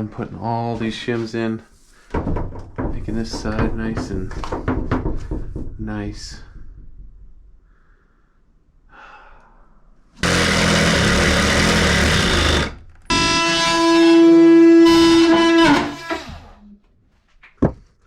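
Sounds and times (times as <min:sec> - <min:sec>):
power tool whining: 0:10.2 - 0:16.6.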